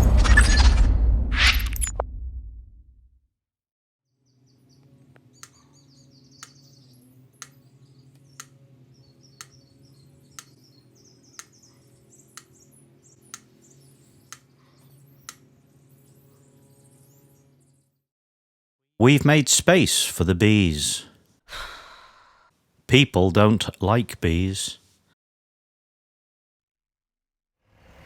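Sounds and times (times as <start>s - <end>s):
faint birdsong chirping: 4.2s - 18.0s.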